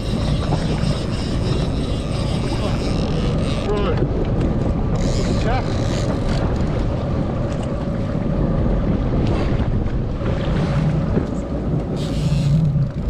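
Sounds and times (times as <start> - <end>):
boat engine running: 0.0 - 13.0
wind buffeting microphone: 0.0 - 13.0.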